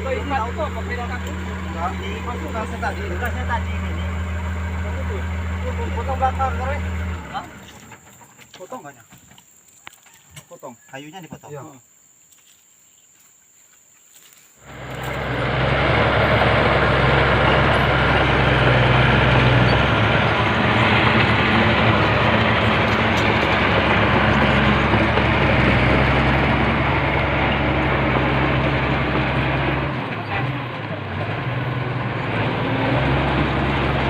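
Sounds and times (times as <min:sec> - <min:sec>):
bulldozer diesel engine: 0:00.0 - 0:08.7, 0:14.6 - 0:34.0.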